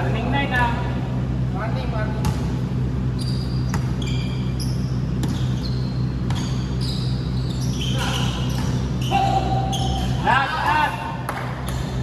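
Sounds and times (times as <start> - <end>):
steady low hum: 0.0 - 12.0
sport shoes squeaking on court: 3.1 - 10.4.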